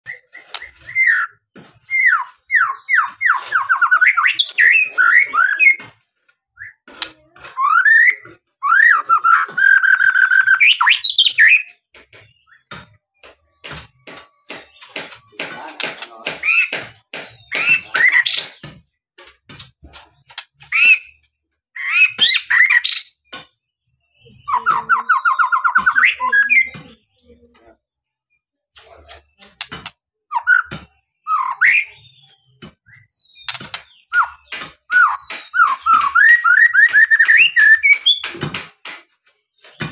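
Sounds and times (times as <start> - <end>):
bird whistling song: 0.0 - 5.8, 7.6 - 11.8, 29.4 - 38.3.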